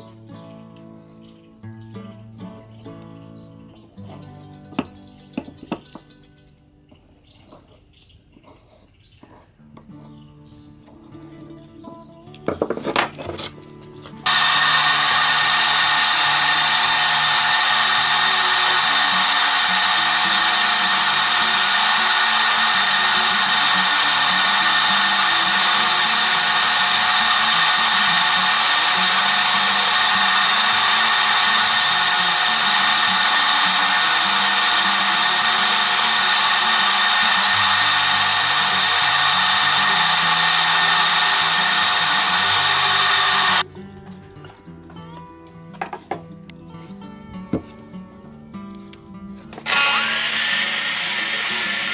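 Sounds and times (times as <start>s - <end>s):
power tool whining: 14.2s - 43.6s, 49.5s - 51.9s.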